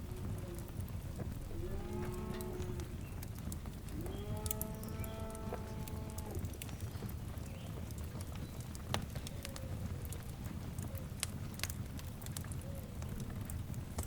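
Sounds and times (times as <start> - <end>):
low steady rumble: 0.0 - 9.3
fire crackling and popping: 0.0 - 14.0
animal mooing: 1.5 - 2.9, 4.0 - 6.5.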